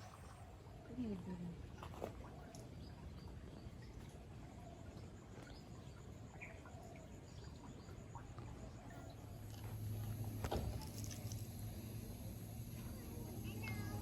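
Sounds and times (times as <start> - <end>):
insect rapid high pulsing: 9.2 - 14.0.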